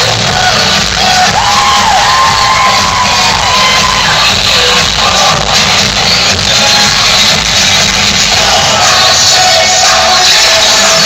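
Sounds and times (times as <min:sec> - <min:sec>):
crowd cheering and whooping: 0:00.0 - 0:06.8
loud music: 0:00.0 - 0:11.0.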